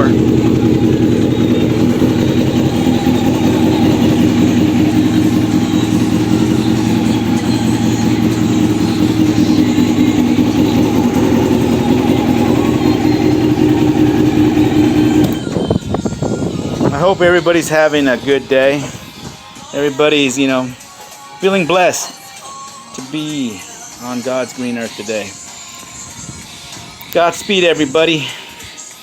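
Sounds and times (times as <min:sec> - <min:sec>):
motorcycle engine running: 0:00.0 - 0:19.2.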